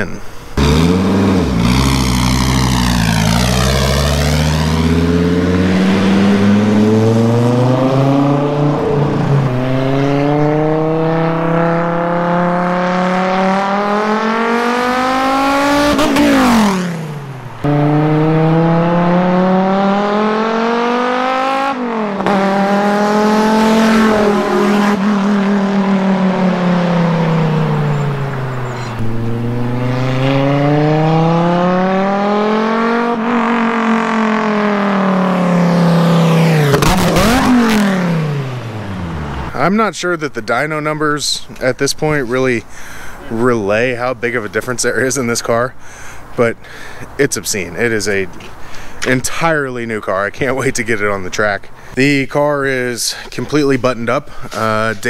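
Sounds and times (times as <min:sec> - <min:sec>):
car engine revving hard: 0:00.6 - 0:39.6.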